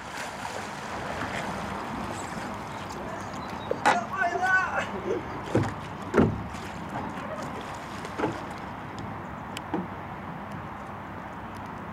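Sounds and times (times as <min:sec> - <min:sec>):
kayak paddle splashes: 0:00.0 - 0:08.9
rushing water: 0:00.0 - 0:10.2.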